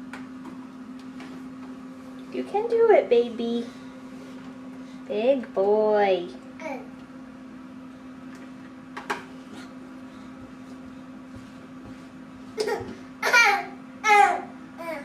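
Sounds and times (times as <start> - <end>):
steady low hum: 0.0 - 15.0
toddler vocal sounds: 13.2 - 15.0.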